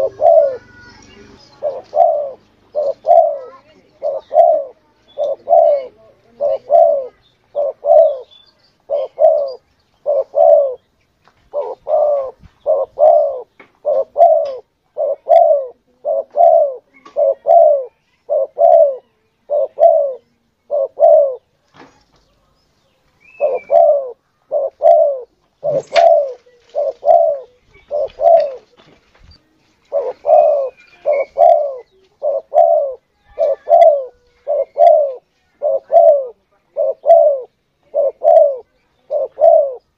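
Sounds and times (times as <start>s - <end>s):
dove cooing: 0.0s - 10.9s, 11.5s - 21.5s, 23.2s - 29.0s, 29.8s - 39.9s.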